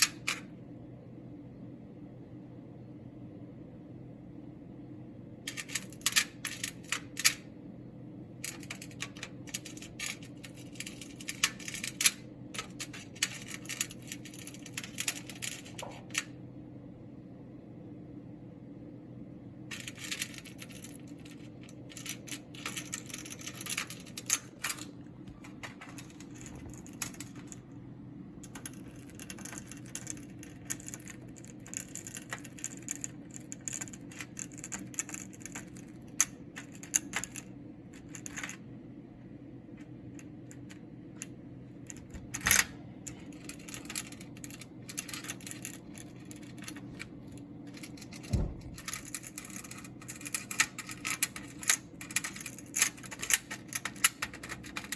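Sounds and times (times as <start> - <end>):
steady low hum: 0.0 - 54.9
dull thud: 48.3 - 48.8.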